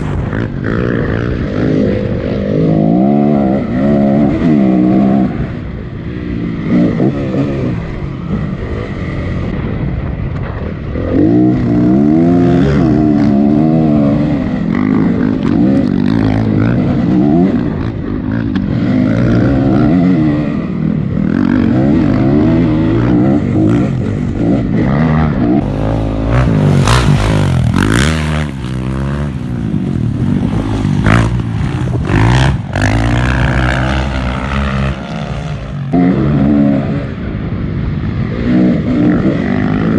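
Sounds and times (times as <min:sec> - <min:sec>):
dirt bike engine revving: 0:19.0 - 0:37.1.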